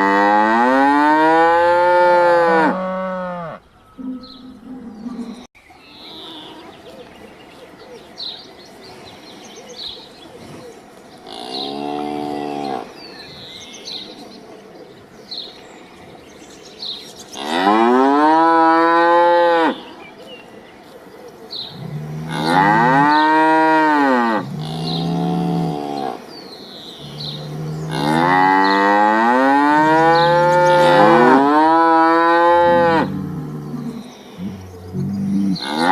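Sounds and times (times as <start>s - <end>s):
cattle mooing: 0.0s - 5.5s, 21.8s - 26.2s, 27.0s - 35.9s.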